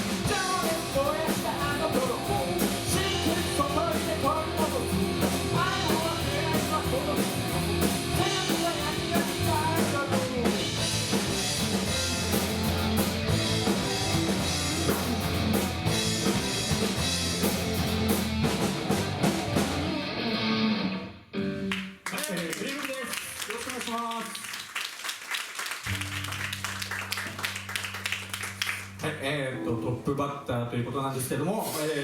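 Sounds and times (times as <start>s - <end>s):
rock music with drums and guitar: 0.0s - 21.9s
person singing: 0.1s - 10.8s.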